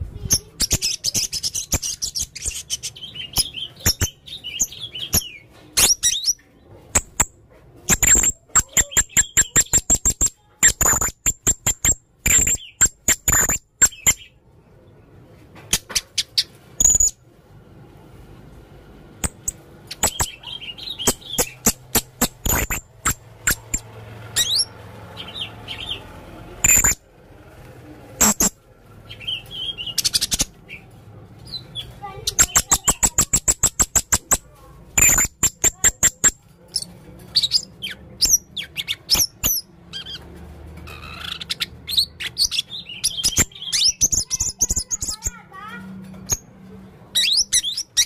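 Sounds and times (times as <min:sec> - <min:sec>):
parrot shrill chirps: 0:19.3 - 0:23.8, 0:26.6 - 0:27.0, 0:28.2 - 0:28.6, 0:35.0 - 0:40.2.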